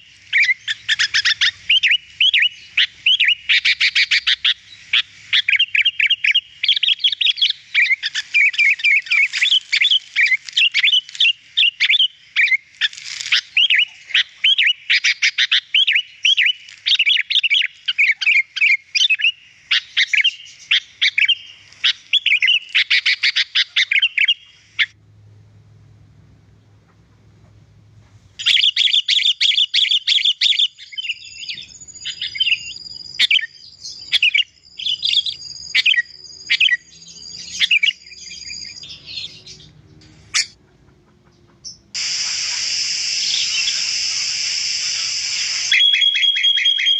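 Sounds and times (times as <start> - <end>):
bulbul singing bright chirps: 28.4 - 40.5.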